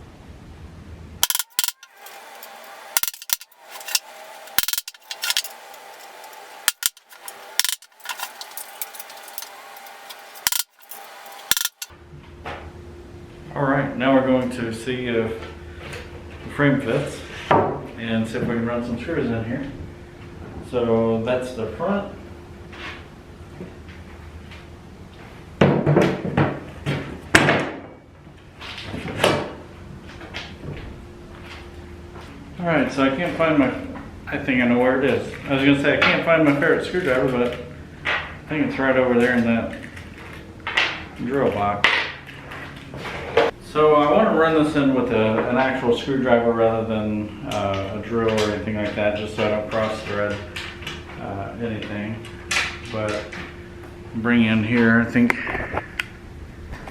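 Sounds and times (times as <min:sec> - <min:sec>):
metallic taps and clinks: 0:01.2 - 0:02.0, 0:03.0 - 0:04.0, 0:04.6 - 0:05.5, 0:06.7 - 0:09.5, 0:10.4 - 0:11.9.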